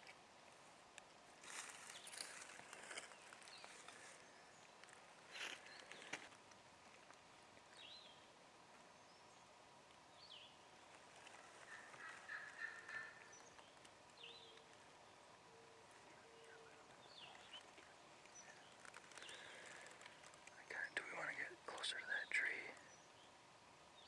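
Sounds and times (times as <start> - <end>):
small bird chirps: 11.3 - 14.8
turkey gobbling: 11.4 - 13.4.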